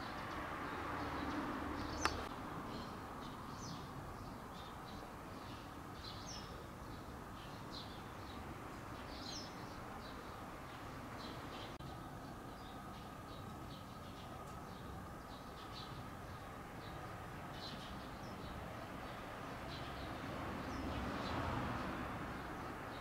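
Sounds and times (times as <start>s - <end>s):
outdoor background noise: 0.0s - 23.0s
small birds chirping: 0.0s - 23.0s
sharp click: 2.0s - 2.3s.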